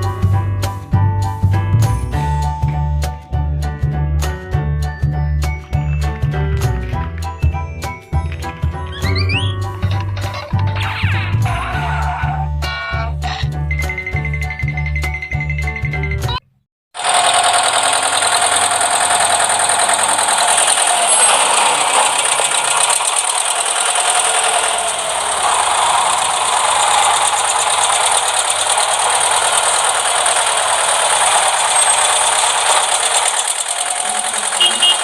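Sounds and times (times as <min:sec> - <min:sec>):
fast continuous rattle: 0:17.0 - 0:35.0
toy electric motor and gears: 0:17.0 - 0:35.0.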